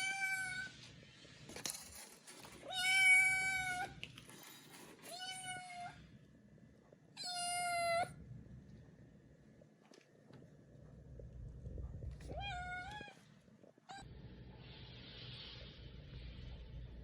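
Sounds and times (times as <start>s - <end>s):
cat meowing: 12.3s - 13.2s.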